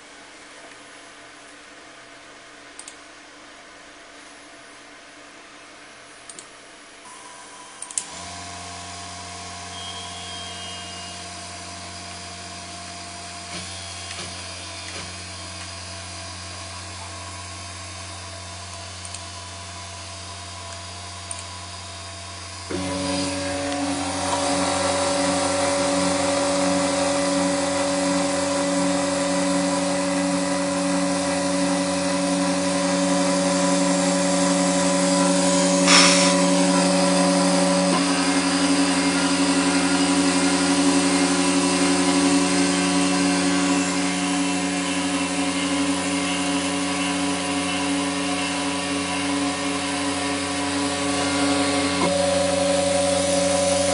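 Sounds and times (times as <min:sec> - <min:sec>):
spindle motor whining: 0:07.1 - 0:19.6, 0:20.5 - 0:53.9
sharp click: 0:07.8 - 0:08.2, 0:35.9 - 0:36.4.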